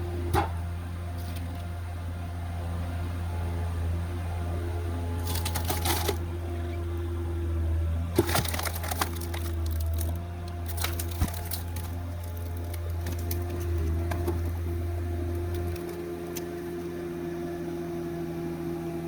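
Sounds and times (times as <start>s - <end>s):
diesel engine running under load: 0.0s - 19.0s
wood cracking and popping: 5.2s - 6.2s, 8.1s - 14.6s, 15.3s - 16.5s.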